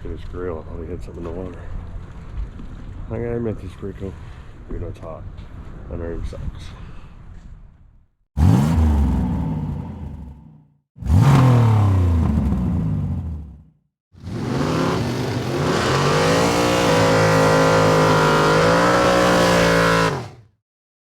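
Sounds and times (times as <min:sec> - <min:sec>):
car engine revving hard: 0:08.4 - 0:20.4.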